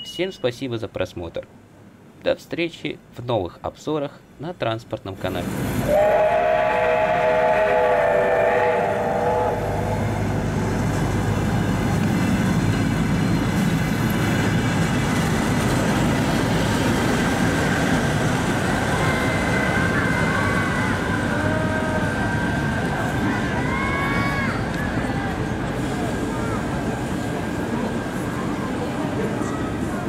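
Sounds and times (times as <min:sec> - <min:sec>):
train rumbling on rails: 0:05.2 - 0:30.0
multi-tone train whistle: 0:05.9 - 0:10.3, 0:18.9 - 0:23.0.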